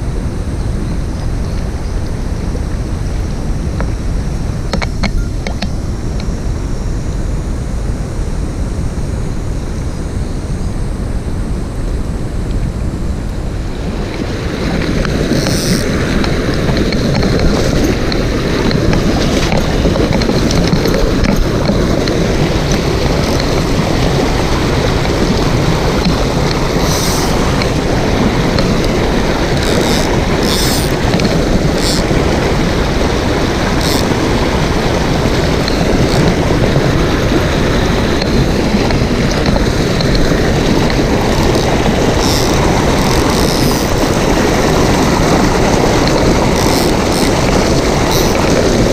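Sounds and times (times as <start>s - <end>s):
stream rushing over rocks: 13.4s - 48.9s.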